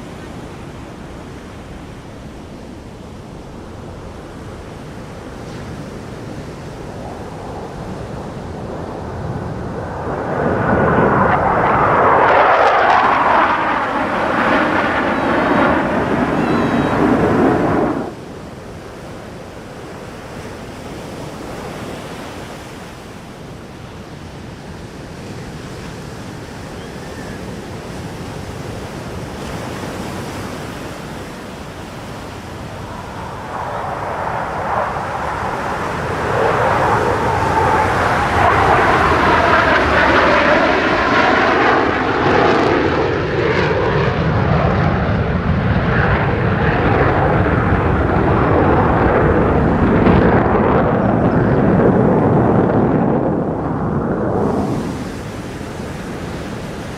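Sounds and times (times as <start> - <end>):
fighter jet engine: 0.0 - 56.9.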